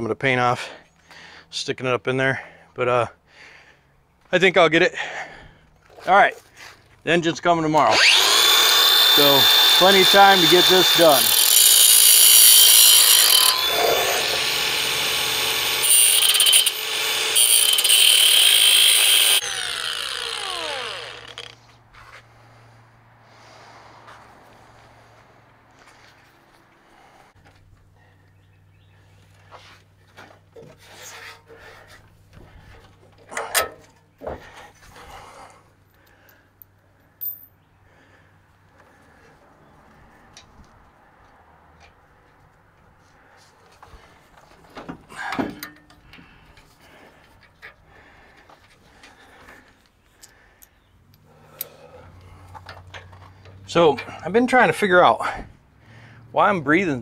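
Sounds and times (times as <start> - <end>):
angle grinder cutting steel: 7.9 - 21.6.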